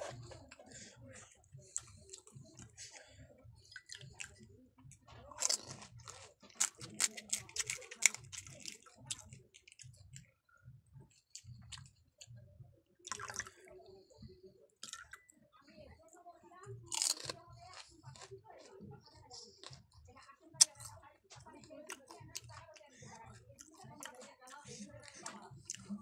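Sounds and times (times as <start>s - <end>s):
chewing and crunching: 0.0s - 10.4s, 11.1s - 12.4s, 13.0s - 15.4s, 16.6s - 26.0s.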